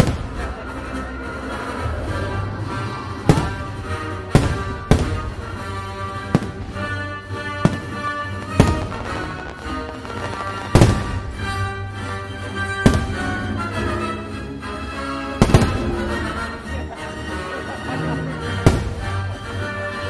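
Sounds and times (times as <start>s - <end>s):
fireworks show music: 0.0s - 20.0s
firework shells bursting: 3.2s - 11.8s, 15.4s - 16.2s.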